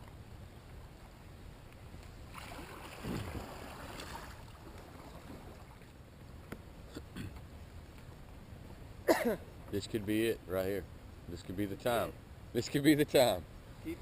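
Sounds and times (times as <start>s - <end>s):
water splashing around kayak: 2.0s - 6.1s.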